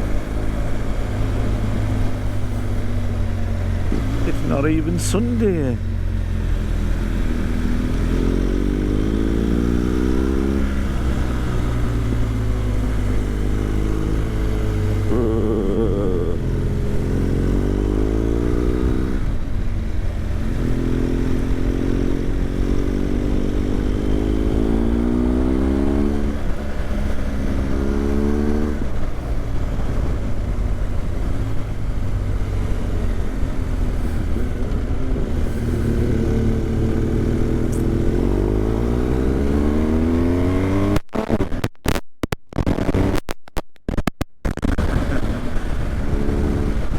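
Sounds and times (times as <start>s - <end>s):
low riding rumble: 0.0s - 9.4s, 10.3s - 27.7s, 28.8s - 39.0s
motorcycle engine revving: 0.0s - 41.6s, 44.5s - 46.9s.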